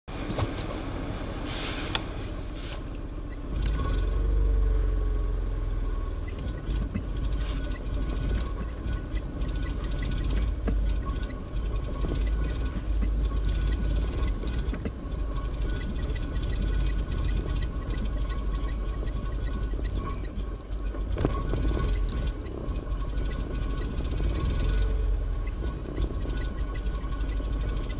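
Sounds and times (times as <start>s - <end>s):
car engine cold starting: 0.1s - 27.9s
faint regular ticking: 6.2s - 27.9s.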